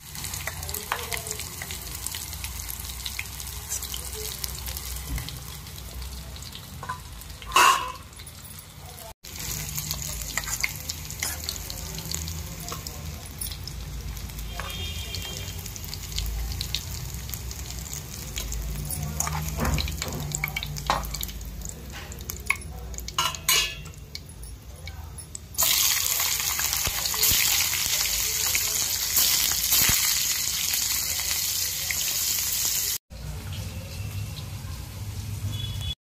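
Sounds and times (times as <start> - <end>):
cauliflower sizzling in hot oil: 0.0 - 8.2, 9.2 - 22.2, 25.5 - 33.0
spoon clinking and scraping pan: 6.8 - 8.8, 9.9 - 11.6, 18.9 - 21.3, 21.9 - 25.4.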